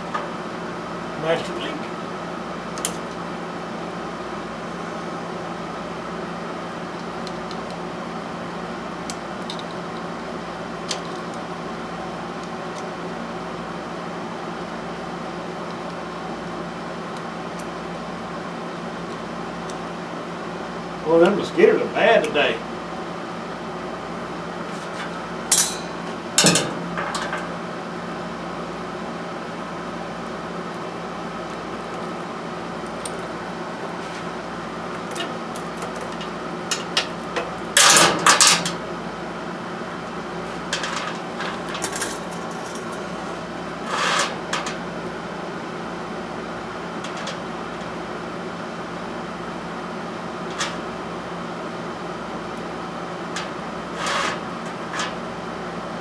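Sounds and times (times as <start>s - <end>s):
steady mechanical hum: 0.0s - 56.0s
metal tools clanking on metal: 2.8s - 3.2s, 24.6s - 27.5s, 31.4s - 38.8s, 40.6s - 44.8s, 50.5s - 50.8s, 53.4s - 55.2s.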